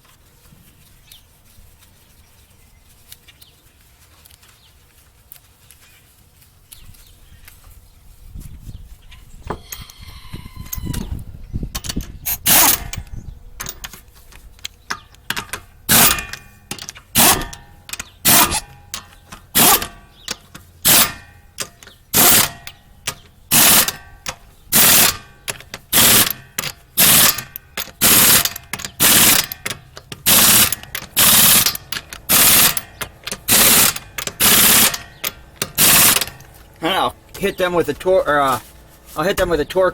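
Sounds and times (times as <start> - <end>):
impact wrench hammering: 12.4 - 13.0, 14.9 - 36.6.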